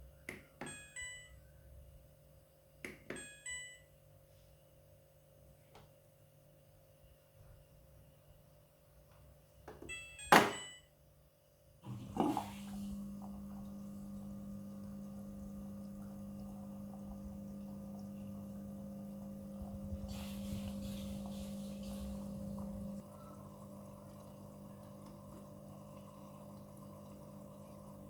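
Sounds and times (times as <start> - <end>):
washing machine thunk: 10.2 - 10.7
washing machine hum: 11.7 - 28.0
hiss: 20.1 - 22.2.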